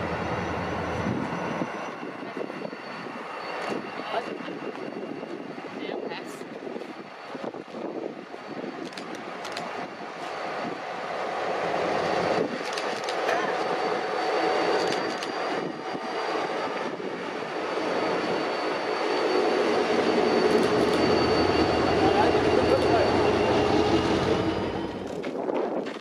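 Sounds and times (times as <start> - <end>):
diesel train rumbling on rails: 0.0 - 26.0
sharp clicks: 12.6 - 13.3.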